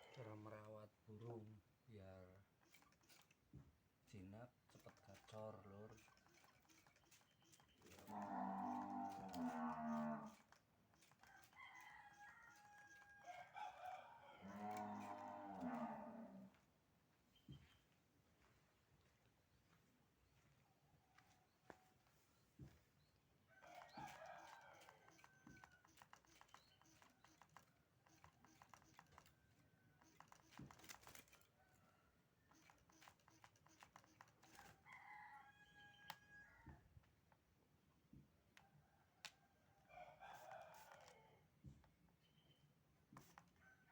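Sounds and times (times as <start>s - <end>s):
long drawn-out animal calls: 7.9s - 10.5s, 14.1s - 16.6s
rooster crowing: 8.1s - 10.4s, 11.3s - 16.5s, 23.6s - 25.8s, 34.6s - 36.8s, 39.8s - 41.4s.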